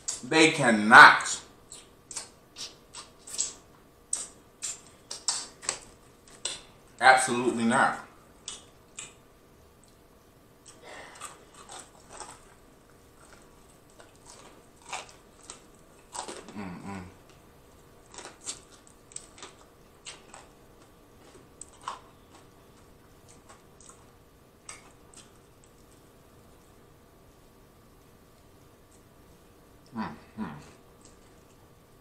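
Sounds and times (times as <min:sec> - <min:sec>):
crunchy chewing: 0:01.4 - 0:06.9, 0:08.4 - 0:09.2, 0:10.6 - 0:26.9, 0:30.6 - 0:31.8
wet mouth clicks: 0:01.7 - 0:05.8
person humming: 0:16.5 - 0:17.2, 0:29.9 - 0:30.8.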